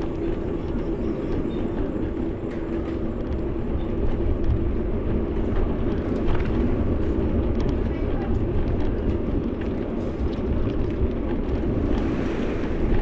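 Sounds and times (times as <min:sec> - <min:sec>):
bike road noise: 0:00.0 - 0:13.0
rushing wind: 0:00.0 - 0:13.0.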